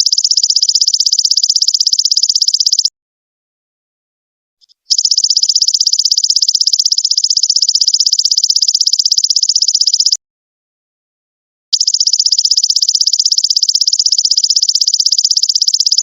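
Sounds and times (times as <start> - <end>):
insect chirp: 0.0 - 2.9, 4.6 - 10.2, 11.8 - 16.0
insect pulsing trill: 0.0 - 2.9, 4.6 - 10.2, 11.8 - 16.0.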